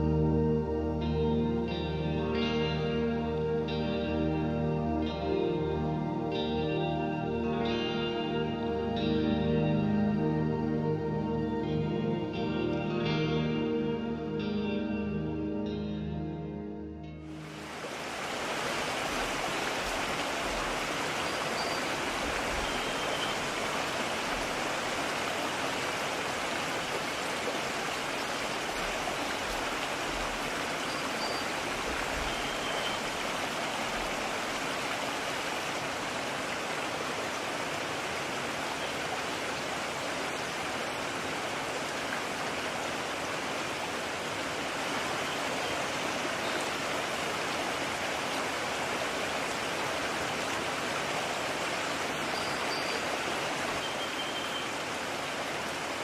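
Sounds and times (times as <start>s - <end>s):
stream running: 17.3s - 56.0s.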